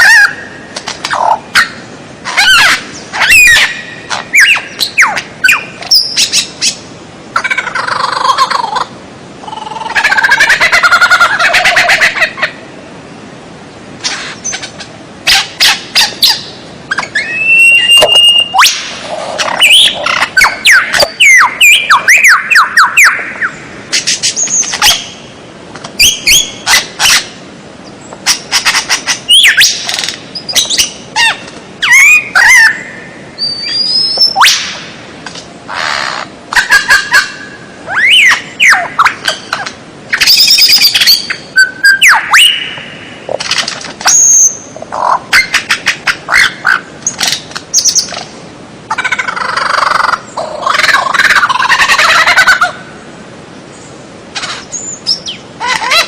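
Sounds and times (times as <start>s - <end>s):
songbird chirps and whistles: 1.2s - 6.8s, 15.3s - 25.2s, 28.3s - 34.7s, 36.6s - 43.0s, 44.0s - 44.6s, 54.6s - 56.0s.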